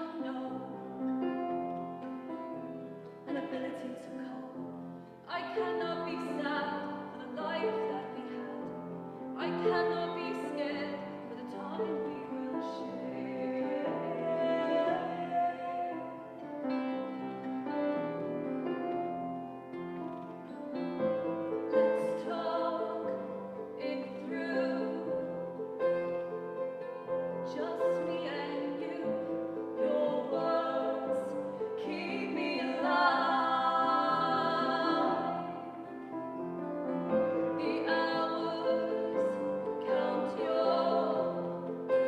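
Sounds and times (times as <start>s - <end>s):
woman singing: 0.0s - 1.0s, 3.2s - 16.5s, 21.7s - 25.6s, 27.5s - 36.2s, 37.2s - 42.0s.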